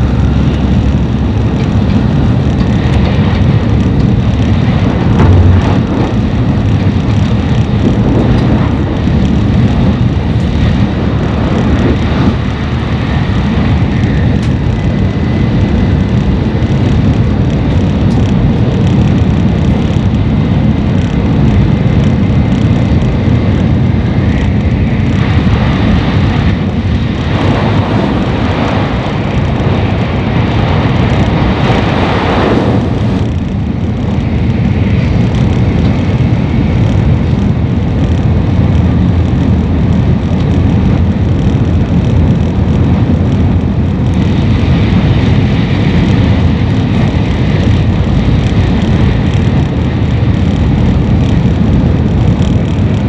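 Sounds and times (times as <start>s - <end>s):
higher rushing noise: 0.0s - 8.8s
train cabin rumble: 0.0s - 53.0s.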